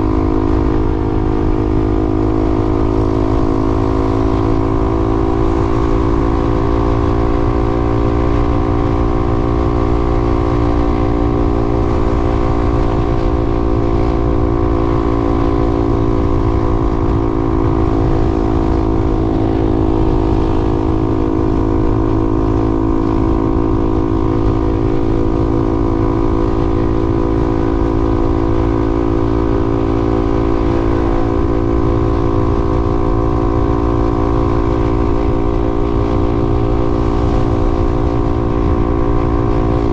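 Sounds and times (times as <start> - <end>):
road and wind rumble: 0.0 - 39.9
vehicle engine cruising: 0.0 - 39.9.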